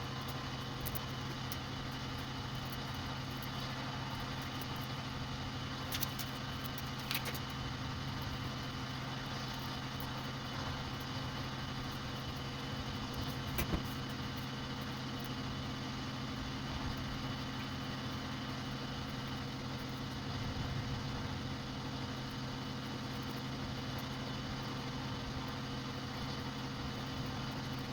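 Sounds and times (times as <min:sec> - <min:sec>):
sharp clicks: 0:05.8 - 0:07.6.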